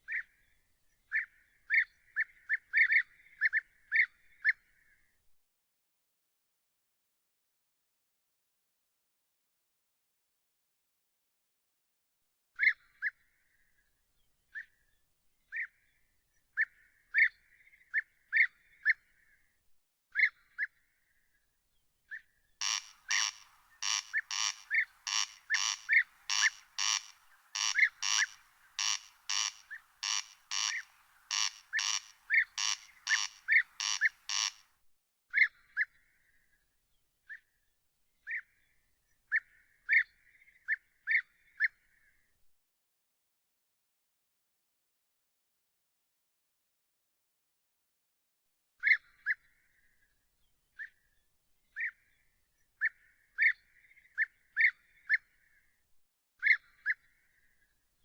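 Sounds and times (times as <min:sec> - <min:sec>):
animal calls with sharp notes: 0:22.6 - 0:34.6.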